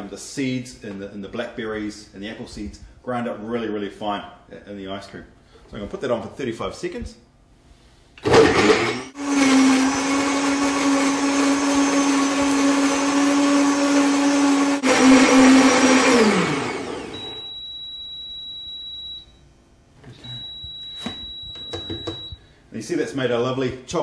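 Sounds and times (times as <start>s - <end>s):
blender motor running: 8.2s - 17.4s
blender motor winding down: 8.2s - 17.4s.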